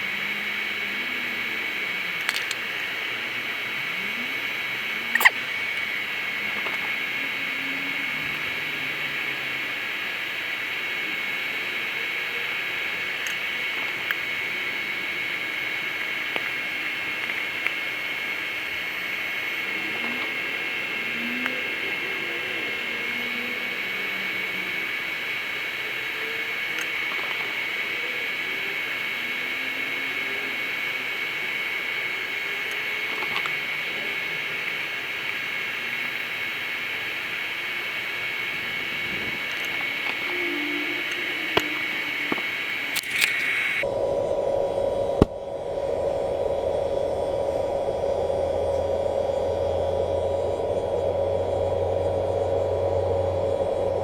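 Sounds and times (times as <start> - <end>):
high whine: 0.0 - 54.0
air blower rushing hiss: 31.9 - 54.0.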